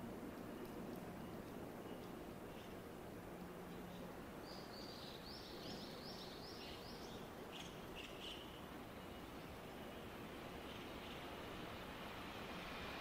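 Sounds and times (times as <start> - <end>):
steady background hiss: 0.0 - 13.0
small bird singing: 3.7 - 9.6.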